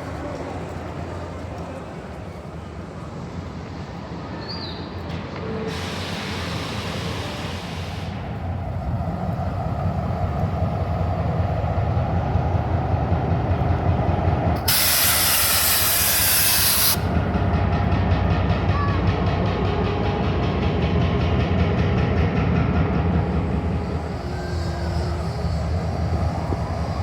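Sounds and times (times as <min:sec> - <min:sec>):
train rumbling: 0:00.0 - 0:27.0
loud burst of hissing: 0:14.6 - 0:17.0.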